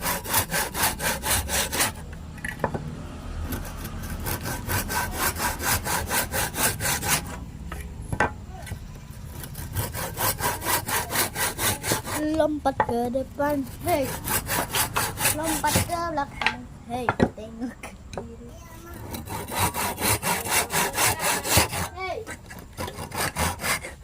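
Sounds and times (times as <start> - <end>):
hand saw cutting wood: 0.0 - 2.1, 3.4 - 7.4, 9.1 - 12.5, 13.4 - 16.0, 18.8 - 24.0.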